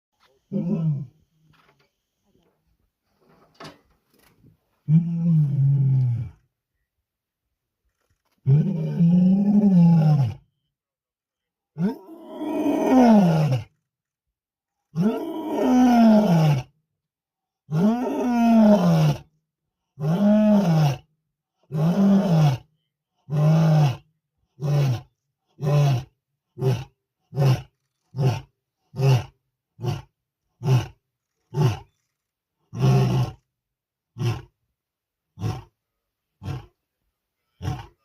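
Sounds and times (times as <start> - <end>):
lion roaring: 0.5 - 1.2, 8.4 - 10.4, 24.6 - 32.0, 32.7 - 33.4, 34.2 - 34.5, 35.4 - 35.7, 36.4 - 36.8, 37.6 - 38.0.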